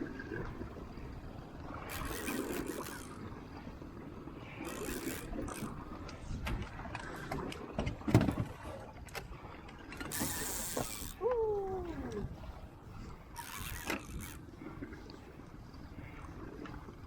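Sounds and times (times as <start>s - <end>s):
water splashing: 1.6s - 3.7s, 9.4s - 15.2s
fishing reel ratcheting: 1.8s - 3.3s, 4.6s - 5.8s, 10.1s - 11.2s, 13.4s - 14.4s.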